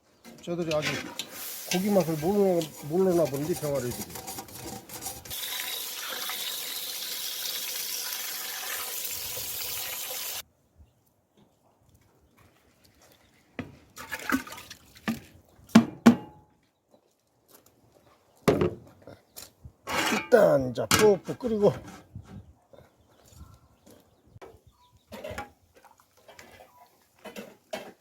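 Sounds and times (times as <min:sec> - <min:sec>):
watery rushing hiss: 0:01.2 - 0:03.0, 0:05.3 - 0:10.4.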